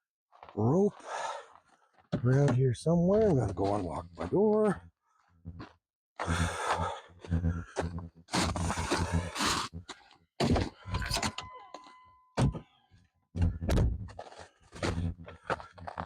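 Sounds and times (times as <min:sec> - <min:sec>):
electronic tone: 0:05.5 - 0:12.6, 0:13.4 - 0:14.2, 0:14.8 - 0:16.0
footsteps crunching in snow: 0:14.0 - 0:16.0.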